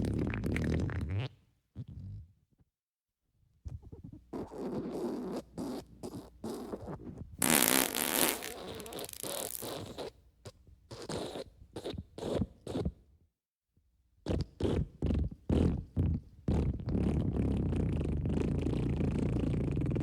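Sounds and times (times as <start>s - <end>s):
wet sputtering fart sounds: 7.4s - 10.1s, 15.2s - 20.0s.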